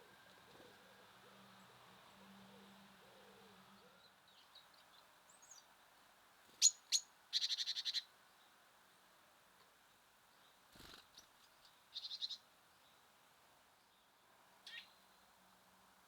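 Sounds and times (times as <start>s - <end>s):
dove cooing: 0.0s - 4.0s
songbird calling: 0.0s - 5.7s, 6.6s - 8.5s, 11.2s - 13.0s, 14.6s - 15.2s
faint bird chirping: 0.0s - 8.6s, 9.8s - 13.1s, 13.7s - 15.4s.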